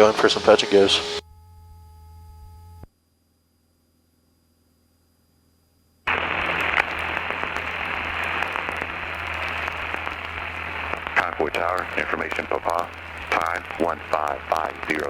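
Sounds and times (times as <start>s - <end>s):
faint radio crackles: 0.0s - 1.2s, 6.1s - 15.0s
radio static hiss: 0.0s - 1.2s, 6.1s - 15.0s.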